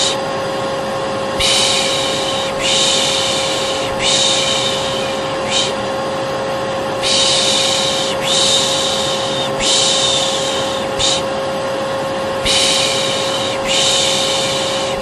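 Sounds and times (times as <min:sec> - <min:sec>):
vacuum cleaner whining: 0:00.0 - 0:15.0
person shushing: 0:01.4 - 0:05.9, 0:07.0 - 0:11.3, 0:12.4 - 0:15.0.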